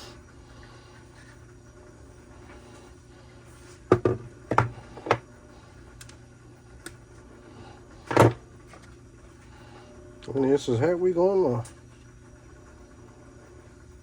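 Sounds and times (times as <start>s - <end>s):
steady low hum: 0.0s - 14.0s
tools knocking on workbench: 3.9s - 5.2s.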